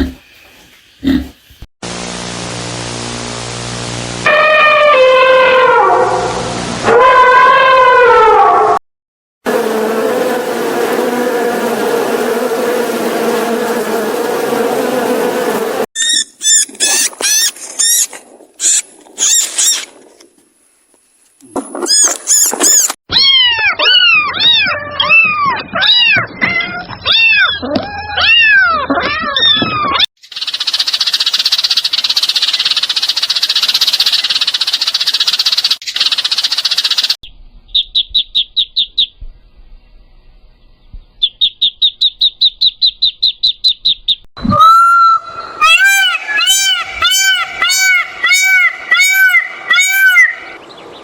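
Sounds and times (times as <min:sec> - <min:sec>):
steady noise: 0:01.8 - 0:04.2
squeaky animal calls: 0:16.0 - 0:19.8, 0:44.4 - 0:50.6.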